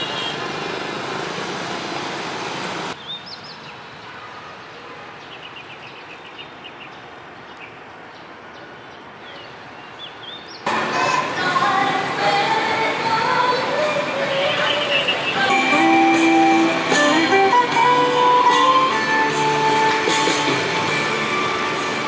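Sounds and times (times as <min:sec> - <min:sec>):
street traffic noise: 0:00.0 - 0:22.0
small birds chirping: 0:04.6 - 0:10.7.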